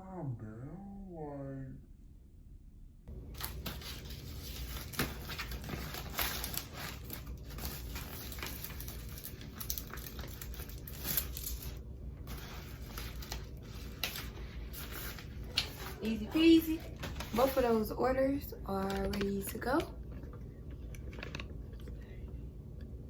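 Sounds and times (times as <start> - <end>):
steady low hum: 0.0 - 23.0
packaging crinkling and rustling: 3.3 - 18.0, 18.7 - 22.0.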